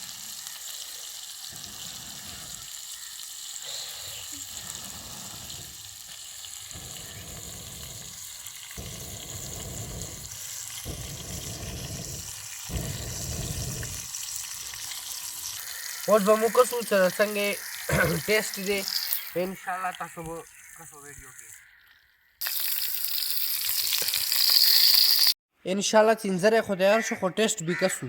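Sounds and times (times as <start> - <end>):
meat sizzling: 0.0 - 21.4, 22.4 - 25.4
low rumbling: 8.8 - 14.1.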